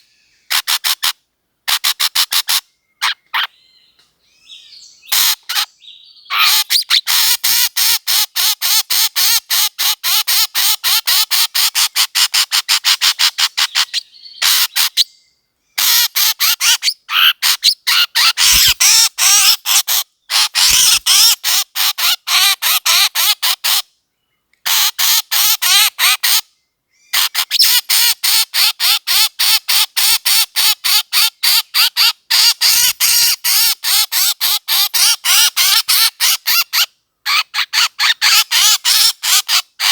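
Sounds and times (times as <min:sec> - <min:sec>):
bird calling in harsh notes: 0:00.0 - 0:07.7, 0:08.7 - 0:23.7.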